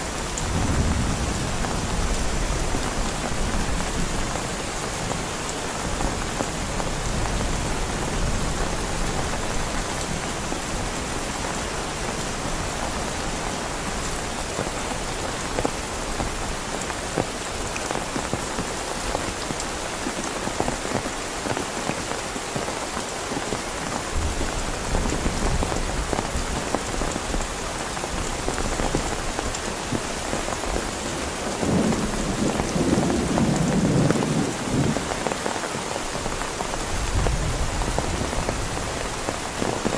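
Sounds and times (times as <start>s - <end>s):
heavy rain falling: 0.0s - 39.9s
low thunder rumbling: 0.4s - 4.6s, 31.6s - 35.2s.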